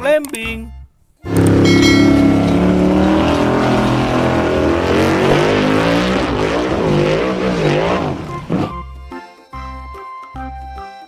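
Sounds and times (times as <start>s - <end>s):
buggy engine revving hard: 1.3s - 8.9s.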